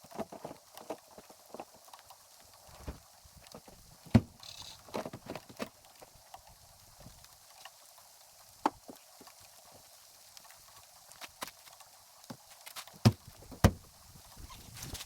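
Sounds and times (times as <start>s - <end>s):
camping gear knocking and clunking: 2.8s - 5.8s, 12.3s - 13.9s.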